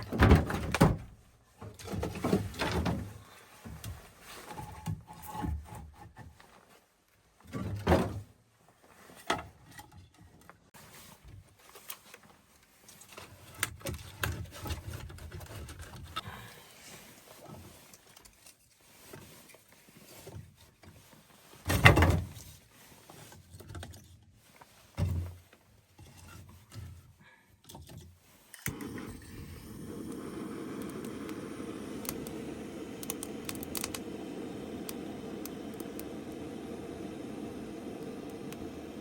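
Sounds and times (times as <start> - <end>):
steady rushing hiss: 28.7 - 39.0
small clicks: 32.0 - 36.4.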